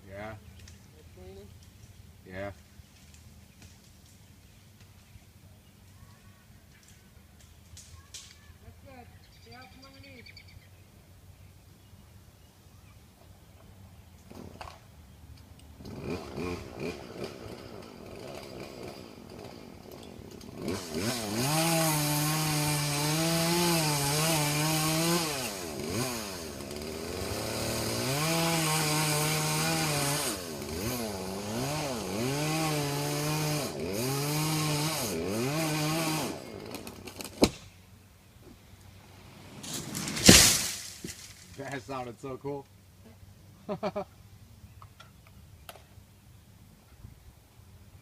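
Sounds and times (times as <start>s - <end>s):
chainsaw cutting wood: 15.6s - 37.8s, 39.2s - 41.8s
sharp wood crack: 35.9s - 37.8s, 39.5s - 41.8s.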